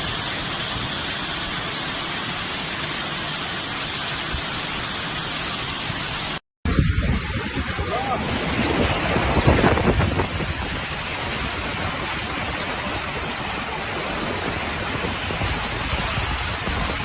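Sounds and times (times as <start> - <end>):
driving water: 0.0 - 17.0
storm wind: 6.7 - 17.0.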